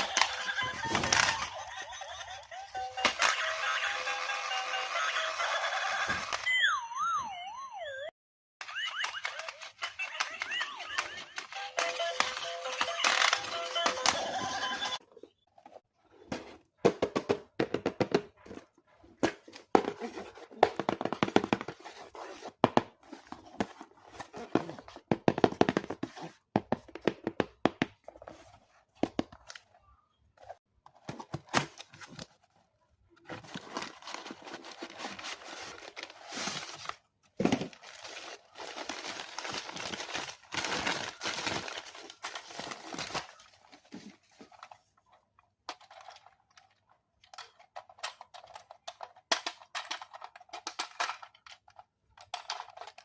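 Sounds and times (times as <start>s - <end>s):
cardboard and plastic clatter: 12.2s - 29.8s, 30.4s - 32.6s, 33.2s - 53.0s
packaging crinkling and tearing: 37.6s - 43.7s.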